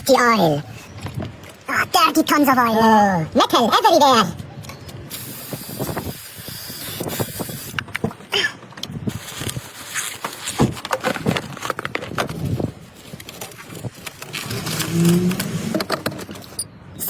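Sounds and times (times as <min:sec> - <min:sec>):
tools and metal parts clinking: 0:13.3 - 0:17.0.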